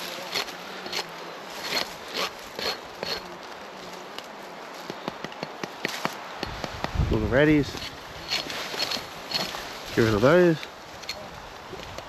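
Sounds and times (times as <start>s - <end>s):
fly buzzing: 0.0s - 5.0s.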